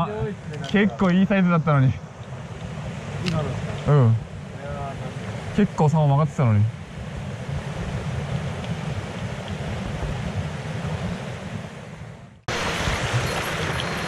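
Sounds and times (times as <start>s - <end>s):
stream water rushing over rocks: 12.5s - 14.0s.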